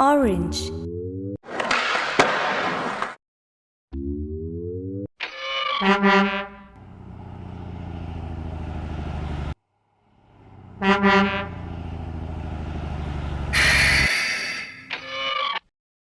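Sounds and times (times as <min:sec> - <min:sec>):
truck horn honking: 0:05.8 - 0:07.0, 0:10.3 - 0:12.2, 0:13.2 - 0:14.2
truck engine running: 0:06.6 - 0:14.1
burst of hiss: 0:13.6 - 0:14.7.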